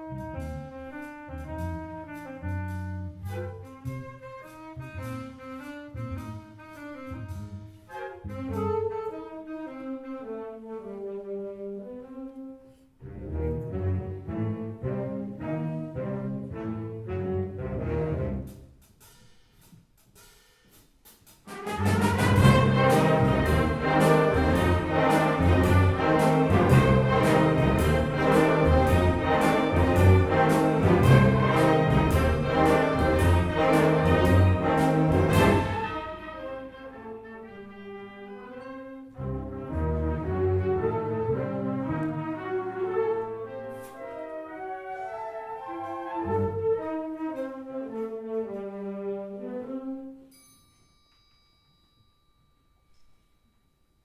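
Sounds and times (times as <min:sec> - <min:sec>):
wind band playing: 0:00.0 - 0:12.5, 0:21.5 - 0:50.2
brass: 0:00.0 - 0:18.7, 0:21.5 - 0:50.3
steady percussion beat: 0:18.5 - 0:36.2
low bass notes: 0:22.2 - 0:35.9.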